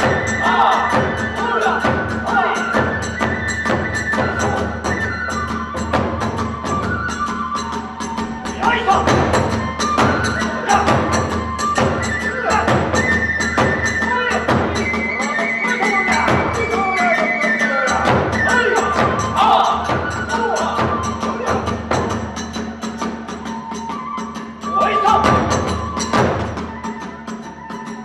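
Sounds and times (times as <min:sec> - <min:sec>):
bamboo flute melody: 0:00.0 - 0:28.0
drum beats: 0:00.0 - 0:28.0.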